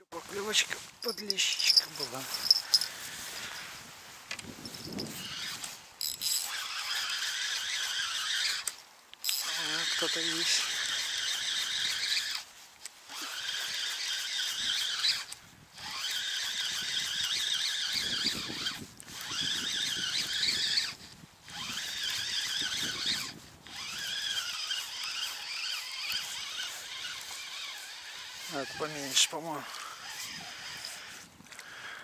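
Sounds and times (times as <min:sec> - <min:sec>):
fishing reel squealing whine: 0:01.0 - 0:03.6, 0:04.7 - 0:12.4, 0:13.1 - 0:31.3.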